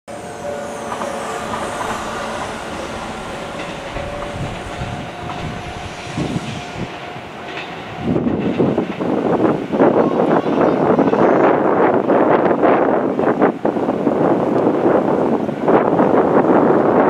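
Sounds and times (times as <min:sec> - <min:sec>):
thin steady whine: 0:00.0 - 0:08.9
train rumbling past: 0:00.0 - 0:17.0
wind buffeting microphone: 0:00.4 - 0:17.0.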